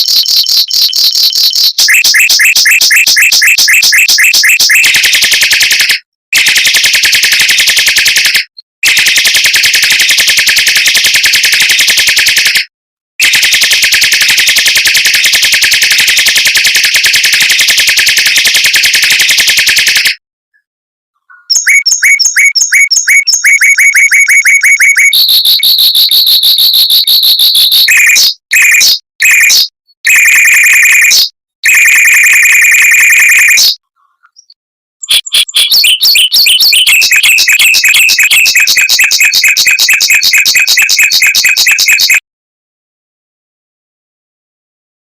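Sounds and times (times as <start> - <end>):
mockingbird trilling: 0.0 - 5.0, 21.2 - 26.2, 33.3 - 41.7.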